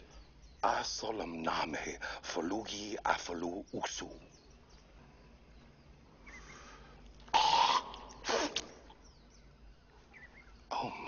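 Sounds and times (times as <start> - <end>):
man spitting: 7.3 - 8.8.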